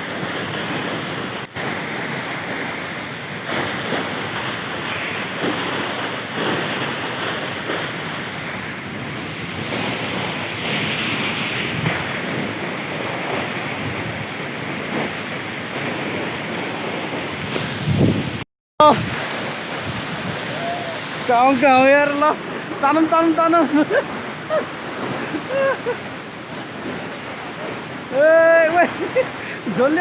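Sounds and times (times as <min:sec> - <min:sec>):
waterfall rushing: 0:00.0 - 0:09.4, 0:17.4 - 0:30.0
wind buffeting microphone: 0:00.0 - 0:30.0.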